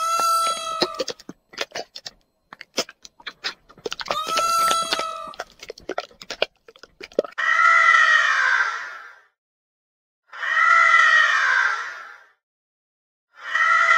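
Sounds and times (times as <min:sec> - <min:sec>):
harsh noisy animal call: 0:00.0 - 0:02.0, 0:02.7 - 0:06.4, 0:10.3 - 0:12.4, 0:13.4 - 0:13.9
animal crunching food: 0:00.0 - 0:07.4
long steady animal call: 0:00.0 - 0:08.8.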